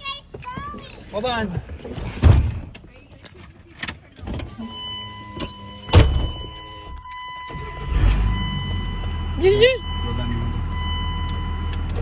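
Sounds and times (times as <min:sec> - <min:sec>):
diesel engine rumble: 0:04.4 - 0:12.0
electronic warning chime: 0:04.6 - 0:12.0.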